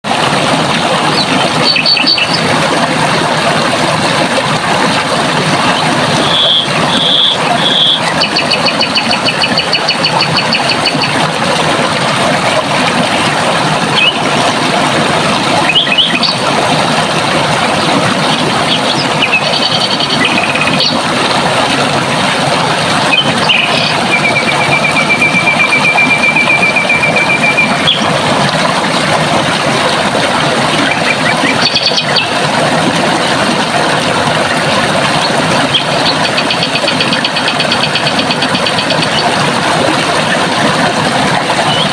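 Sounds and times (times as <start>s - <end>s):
running water: 0.0s - 41.9s
songbirds calling: 1.1s - 2.5s, 6.2s - 11.2s, 15.6s - 16.5s, 18.6s - 21.0s, 23.1s - 28.1s, 30.9s - 32.4s.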